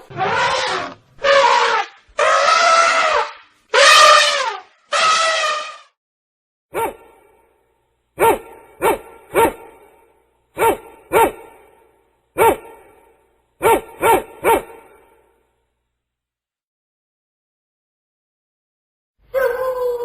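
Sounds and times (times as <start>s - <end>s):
dog barking: 6.7s - 7.2s, 8.2s - 9.8s, 10.6s - 11.6s, 12.4s - 12.9s, 13.6s - 15.0s, 19.3s - 20.0s.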